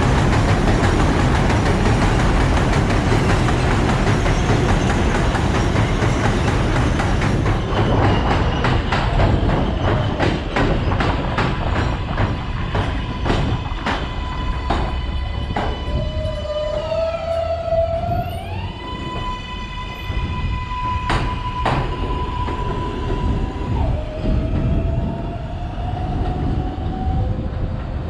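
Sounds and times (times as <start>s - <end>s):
wheels clacking over rail joints: 0.0s - 16.1s
subway train wheels rumbling: 0.0s - 28.0s.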